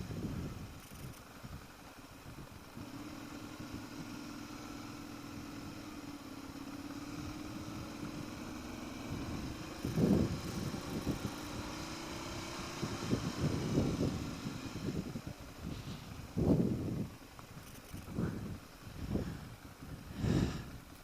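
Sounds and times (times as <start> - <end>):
low engine rumbling surges: 0.0 - 21.0
motorcycle engine running: 0.0 - 21.0.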